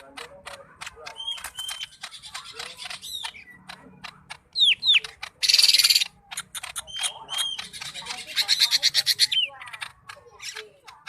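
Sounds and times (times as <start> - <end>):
bird singing varied song: 0.0 - 11.0.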